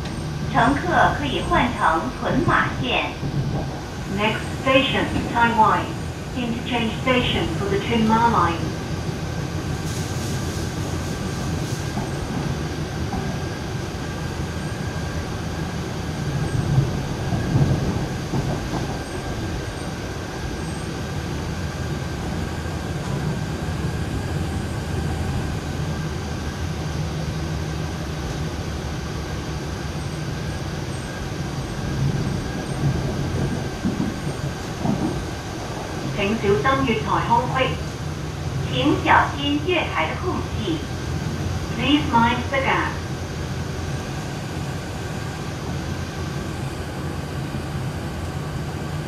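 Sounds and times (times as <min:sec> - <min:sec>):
constant high hum: 0:00.0 - 0:09.7, 0:21.7 - 0:49.0
train wheels rumbling on track: 0:00.0 - 0:49.0.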